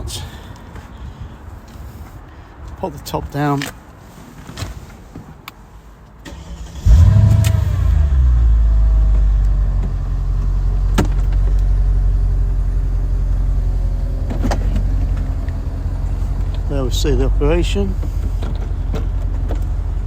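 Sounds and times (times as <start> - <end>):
car engine starting and idling: 6.2 - 20.0.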